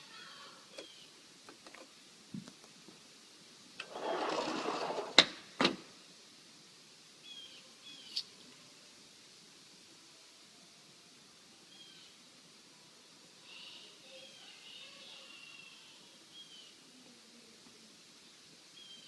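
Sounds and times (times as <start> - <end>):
faint bird chirps: 0.1 - 1.2, 7.2 - 8.4, 11.6 - 12.2, 13.4 - 17.4, 18.2 - 19.0.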